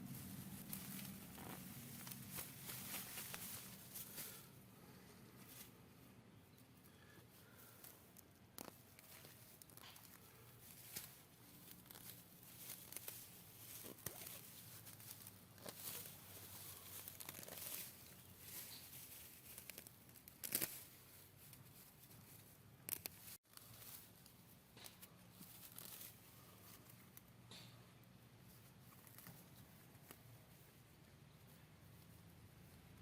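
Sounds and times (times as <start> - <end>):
weeds tearing and rustling: 0.0 - 5.8, 7.4 - 27.3
stems snapping: 0.4 - 4.4, 7.8 - 21.7, 22.8 - 27.8.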